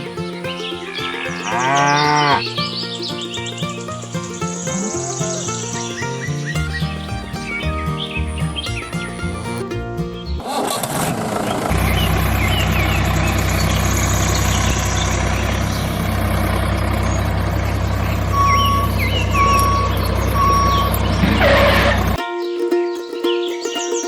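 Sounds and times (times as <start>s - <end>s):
vehicle engine humming: 0.0s - 22.2s
reversing beeps: 18.3s - 21.9s.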